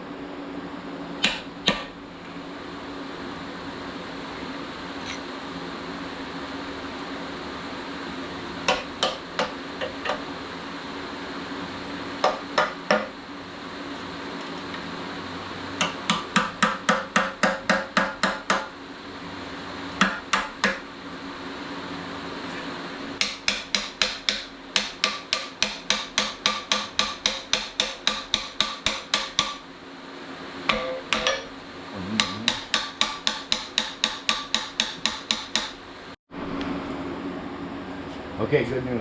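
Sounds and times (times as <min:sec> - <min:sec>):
steady low hum: 0:00.0 - 0:39.0
hammer blows: 0:30.7 - 0:35.7.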